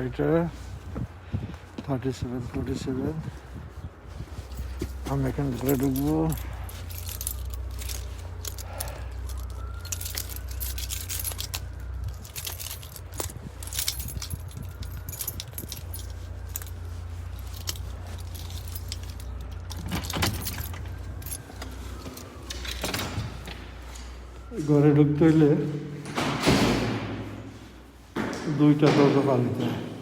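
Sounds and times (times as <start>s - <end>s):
keys jangling: 4.3s - 24.5s.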